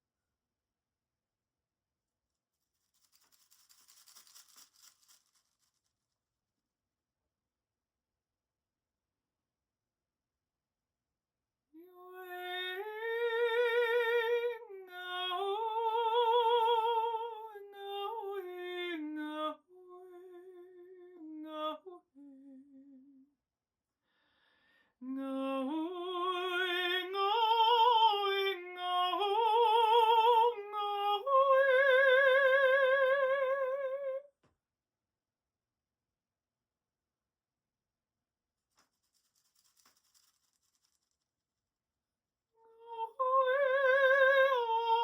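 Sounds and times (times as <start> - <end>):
woman singing with vibrato: 11.8 - 22.9, 25.0 - 34.2, 42.7 - 45.0.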